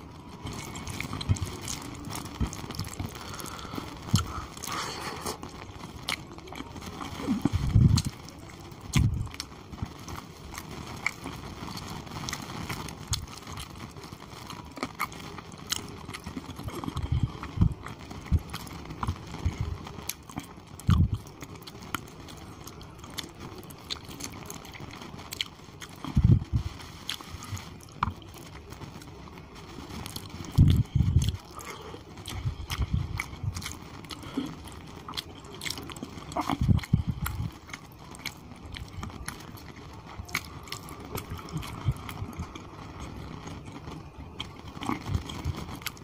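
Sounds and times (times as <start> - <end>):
chewing and biting food: 30.1 - 42.6, 44.4 - 46.0.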